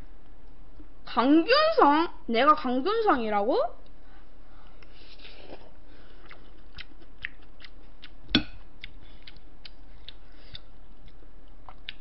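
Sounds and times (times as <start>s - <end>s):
chewing with wet mouth clicks: 6.2s - 12.0s.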